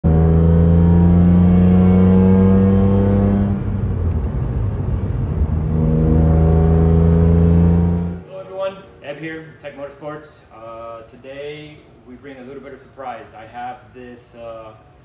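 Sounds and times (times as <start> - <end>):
car engine pulling under load: 0.1 - 8.3.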